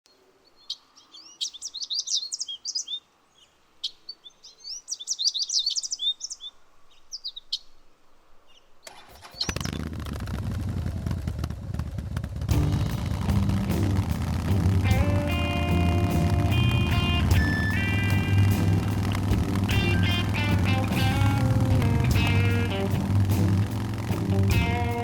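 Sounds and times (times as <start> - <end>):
birds chirping and singing: 0.4 - 7.8, 15.0 - 25.0
motorcycle engines running: 8.9 - 25.0.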